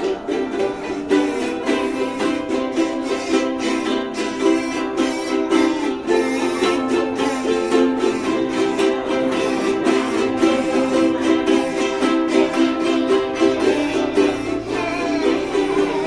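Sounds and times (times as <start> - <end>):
strummed ukulele and guitar: 0.0 - 16.0
choir singing a hymn: 8.9 - 16.0.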